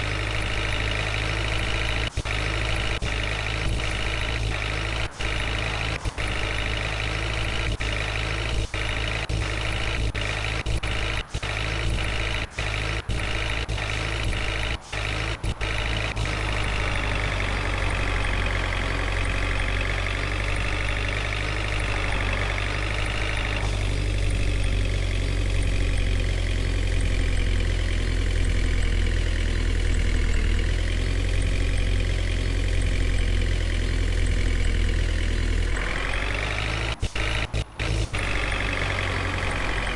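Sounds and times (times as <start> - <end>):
vehicle engine idling: 0.0 - 39.9.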